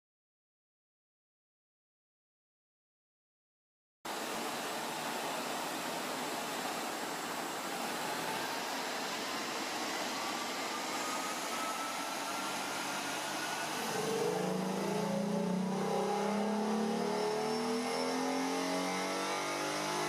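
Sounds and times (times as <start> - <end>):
faint whine rising in pitch: 6.3 - 20.0
rushing air noise: 7.7 - 17.7.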